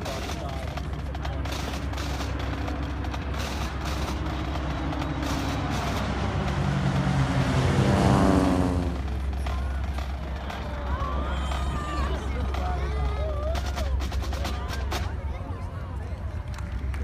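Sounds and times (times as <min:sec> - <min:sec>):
vehicle engine passing by: 0:01.1 - 0:12.6.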